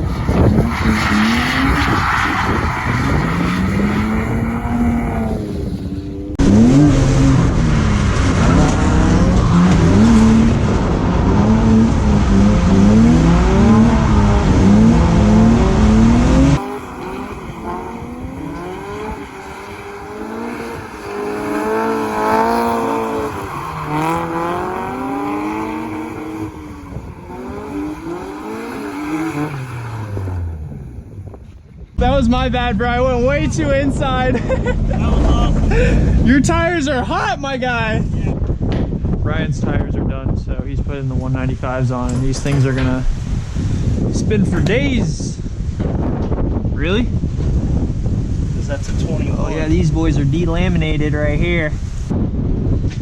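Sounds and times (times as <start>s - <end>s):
car engine revving hard: 0.0s - 31.4s.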